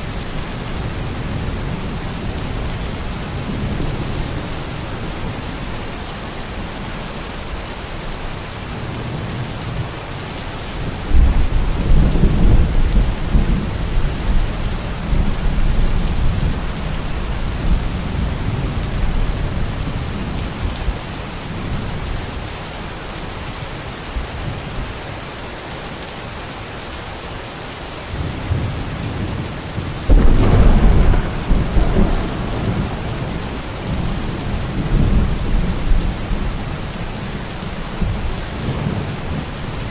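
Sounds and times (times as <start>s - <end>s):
steady rain: 0.0s - 39.9s
thunder rumbling: 10.9s - 21.0s, 28.2s - 39.9s.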